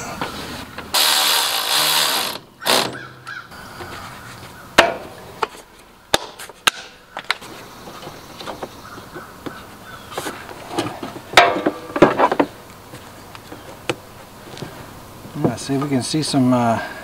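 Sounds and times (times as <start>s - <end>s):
rustling noise: 0.0s - 2.4s, 3.7s - 4.7s, 7.3s - 15.6s.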